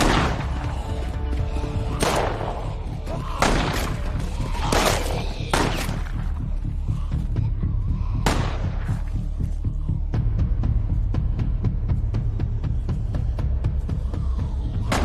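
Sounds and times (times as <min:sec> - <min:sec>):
gunshots with ringing echo: 0:00.0 - 0:00.6
low drone music: 0:00.0 - 0:15.0.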